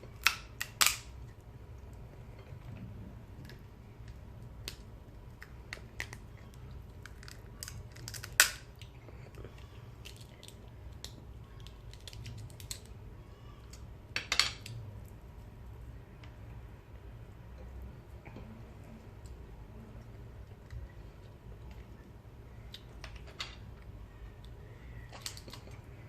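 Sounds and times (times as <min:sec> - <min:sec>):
eating crunches: 0:04.7 - 0:13.0.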